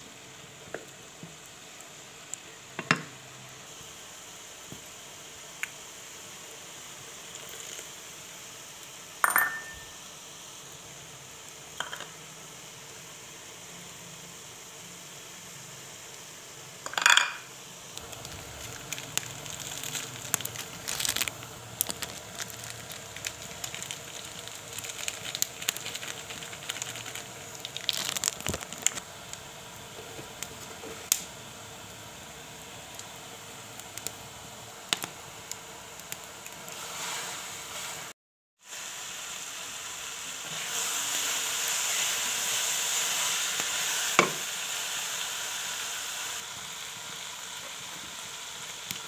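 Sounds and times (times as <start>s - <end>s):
vegetables sizzling in hot pan: 0.0s - 49.0s
clinks on steel wok: 9.2s - 9.9s, 11.8s - 12.1s, 16.8s - 17.4s.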